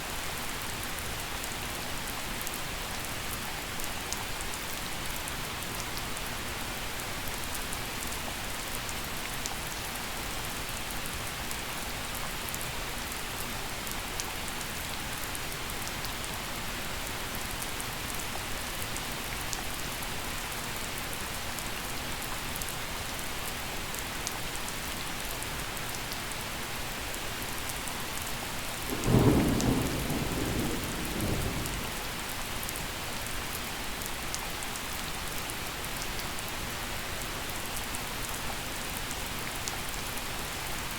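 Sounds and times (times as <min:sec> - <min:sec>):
gentle rain falling: 0:00.0 - 0:40.9
thunder clap and rumble: 0:28.9 - 0:32.0.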